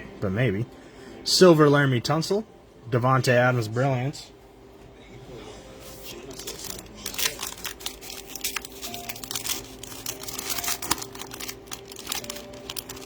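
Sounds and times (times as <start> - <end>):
cards being handled: 5.8 - 13.0
wrappers crinkling and tearing: 6.0 - 13.0.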